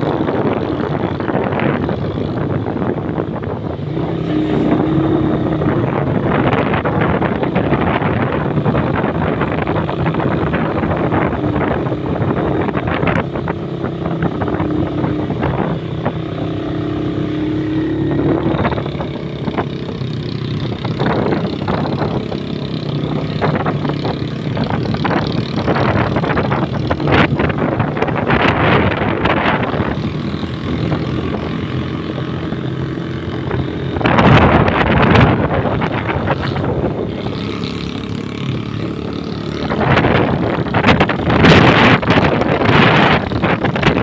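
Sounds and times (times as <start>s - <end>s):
motorcycle engine running: 0.0s - 44.0s
wind buffeting microphone: 0.0s - 44.0s.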